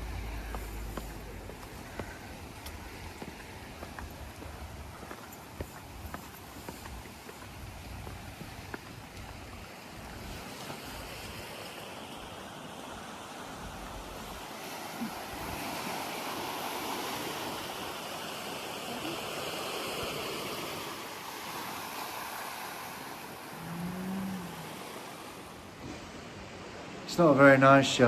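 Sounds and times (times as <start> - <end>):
wind buffeting microphone: 0.0 - 11.6
sea surf rushing: 0.0 - 28.0.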